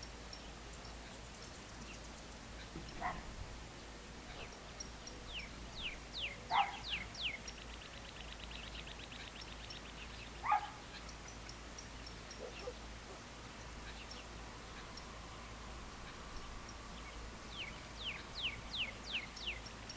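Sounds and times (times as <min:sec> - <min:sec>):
birds singing: 0:00.0 - 0:19.9
lower bird calls: 0:04.2 - 0:19.9.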